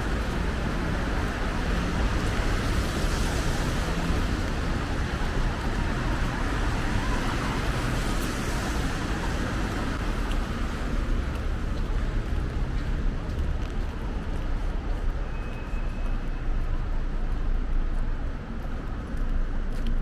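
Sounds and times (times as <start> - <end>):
tyres hissing on wet road: 0.0 - 11.8
rain: 0.0 - 20.0.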